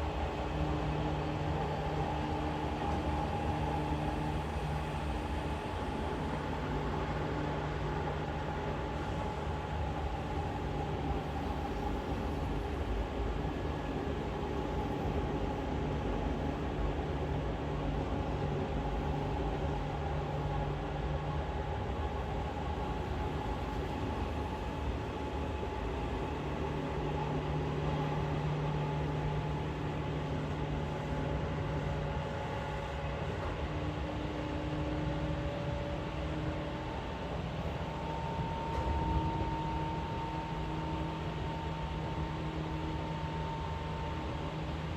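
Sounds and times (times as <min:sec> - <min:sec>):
train wheels rumbling on rail: 0:00.0 - 0:44.9.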